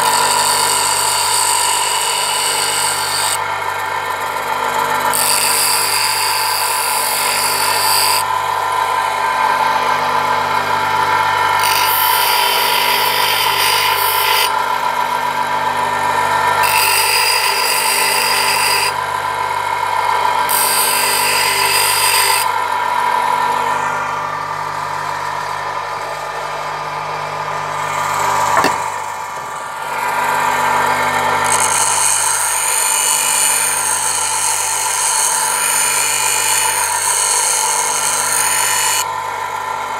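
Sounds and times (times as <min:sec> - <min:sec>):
chisel grinding on wheel: 0:00.0 - 0:03.4, 0:05.0 - 0:08.2, 0:11.6 - 0:14.6, 0:20.5 - 0:22.5, 0:31.4 - 0:39.1
bench grinder humming: 0:00.0 - 0:39.9.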